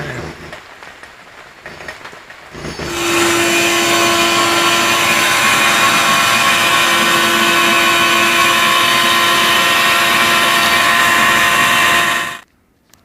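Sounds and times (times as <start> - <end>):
power tool whining: 2.9 - 12.4.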